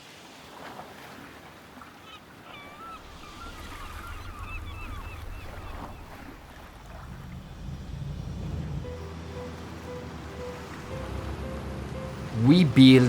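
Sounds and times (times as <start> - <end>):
low rumble: 6.8 - 9.5.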